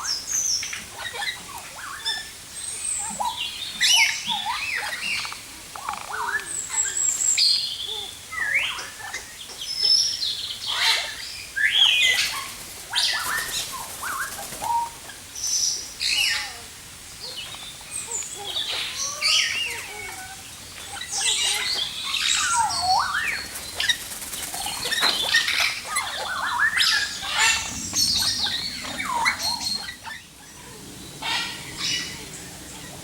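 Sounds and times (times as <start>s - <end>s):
many birds chirping and whistling: 0.0s - 33.0s
harsh bird calls: 16.0s - 33.0s.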